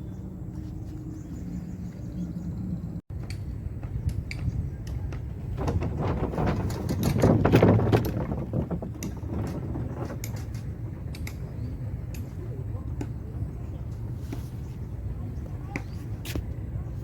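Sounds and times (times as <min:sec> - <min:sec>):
rattling and clicking: 0:04.3 - 0:12.4.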